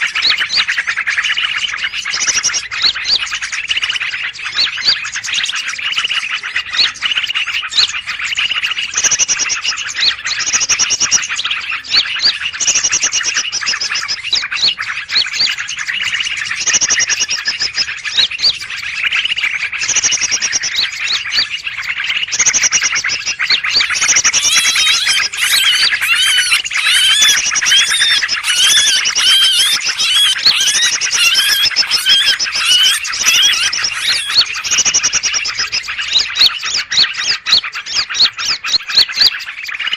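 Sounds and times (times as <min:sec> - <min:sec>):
songbirds chirping and twittering: 0:00.0 - 0:39.9
fast bird warbling: 0:22.2 - 0:39.9
short high bird trills: 0:23.7 - 0:35.0.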